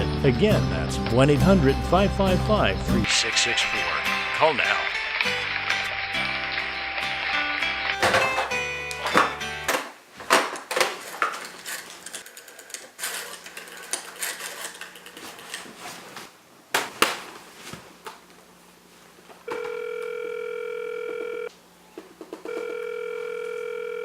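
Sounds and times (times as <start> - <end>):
telephone line tone: 19.5 - 21.5, 22.4 - 24.0.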